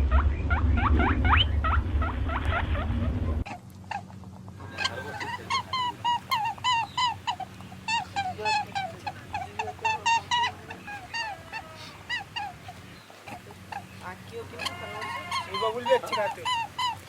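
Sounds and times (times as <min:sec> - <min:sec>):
fowl calling: 0:00.0 - 0:17.0.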